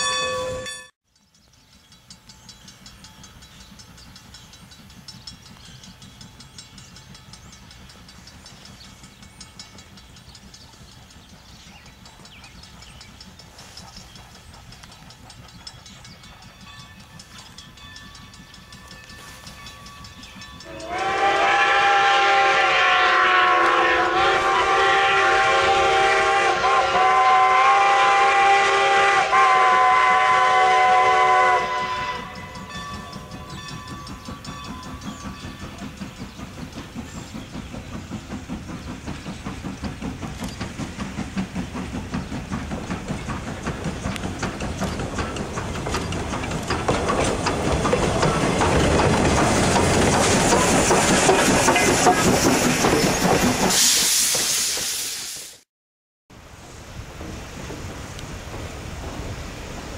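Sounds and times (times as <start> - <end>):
train running rhythmically: 0.0 - 55.7, 56.4 - 59.9
steam locomotive whistle: 20.6 - 33.6, 53.7 - 55.5.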